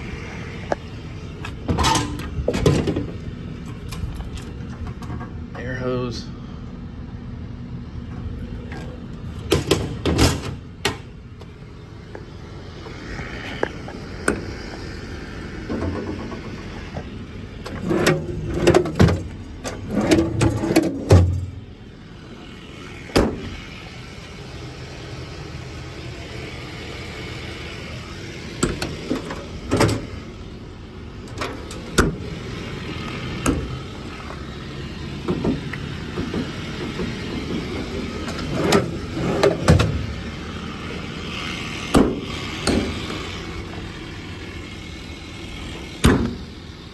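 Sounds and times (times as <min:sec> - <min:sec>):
steady hum: 0:00.0 - 0:46.9
metal parts clunking and rattling: 0:01.4 - 0:05.4, 0:17.6 - 0:21.6.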